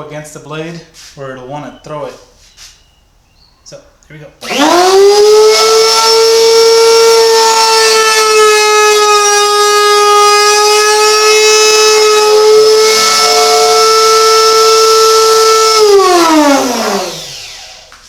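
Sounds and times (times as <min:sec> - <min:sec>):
router motor whining: 0:04.4 - 0:18.0.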